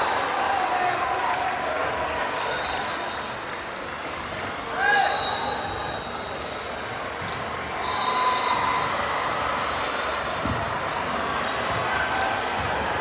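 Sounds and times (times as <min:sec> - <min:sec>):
murmur of gym hall: 0:00.0 - 0:13.0.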